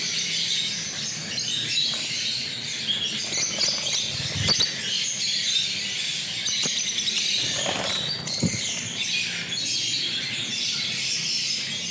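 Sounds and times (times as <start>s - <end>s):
lovebirds chattering: 0.2s - 11.9s.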